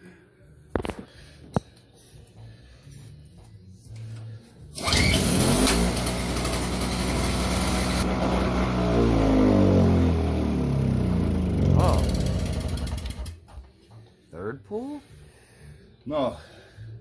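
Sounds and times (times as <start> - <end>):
snowblower engine running: 4.8 - 13.5.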